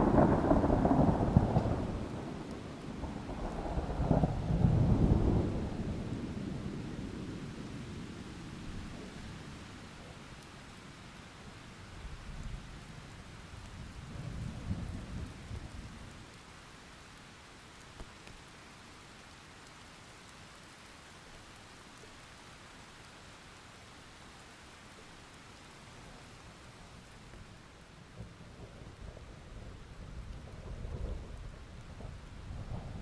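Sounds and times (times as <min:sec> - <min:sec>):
thunder rumbling: 0:00.0 - 0:07.6, 0:28.1 - 0:33.0
steady rain: 0:00.0 - 0:33.0.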